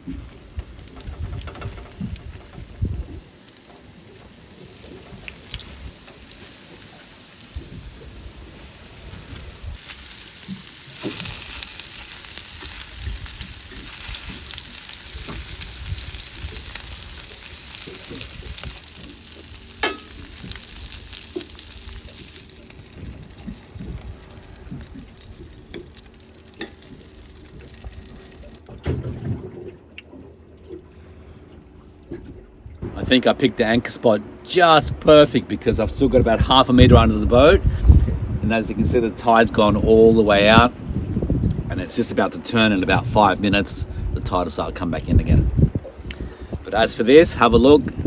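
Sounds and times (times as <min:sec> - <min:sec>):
fish frying in hot oil: 0:00.0 - 0:28.6.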